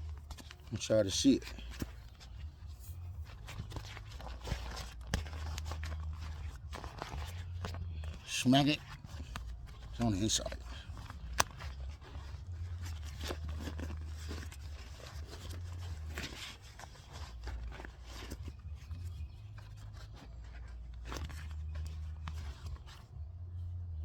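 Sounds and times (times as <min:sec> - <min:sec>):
rubber inner tube rustling: 0:00.0 - 0:24.0
low rumble: 0:01.6 - 0:16.1.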